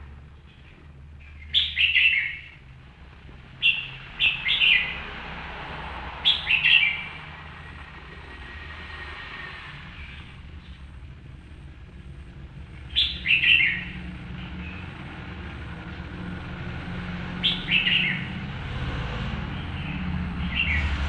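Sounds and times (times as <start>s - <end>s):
bird sharp chirps: 1.3s - 2.6s, 3.6s - 5.1s, 6.2s - 7.4s, 12.8s - 14.8s, 17.4s - 18.4s.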